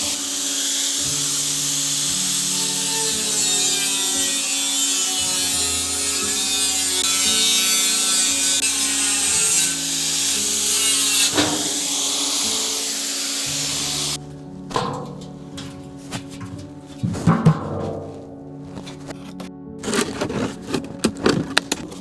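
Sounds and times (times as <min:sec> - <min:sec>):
saw cutting: 0:00.0 - 0:14.3
background music: 0:00.0 - 0:22.0.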